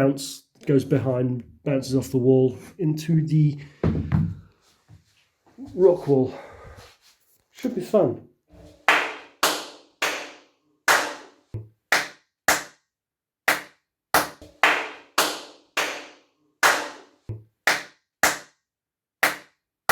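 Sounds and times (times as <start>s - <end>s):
hand claps with room echo: 8.8s - 12.8s, 13.5s - 18.6s, 19.2s - 19.6s.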